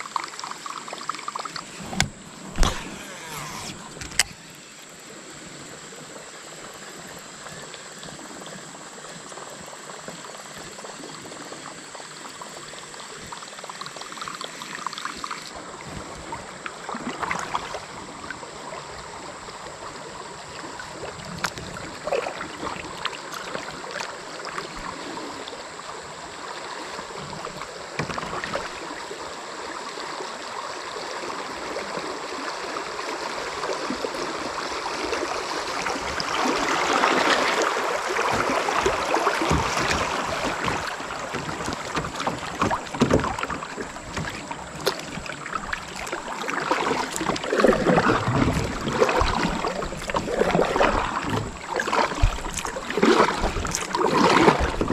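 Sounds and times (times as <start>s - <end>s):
creek water rushing and splashing: 0.0s - 54.9s
knocks and clicks: 1.7s - 4.4s.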